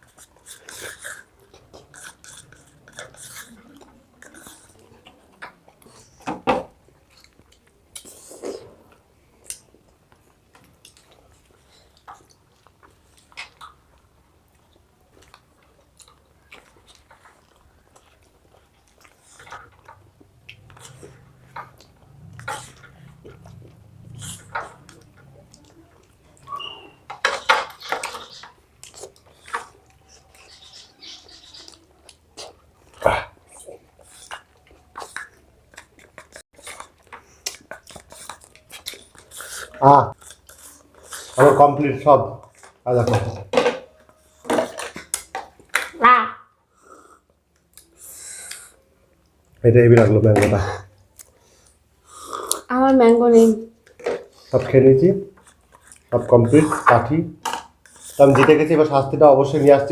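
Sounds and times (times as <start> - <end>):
mouth chewing clicks and smacks: 9.4 - 41.4, 51.0 - 52.7, 55.3 - 56.2.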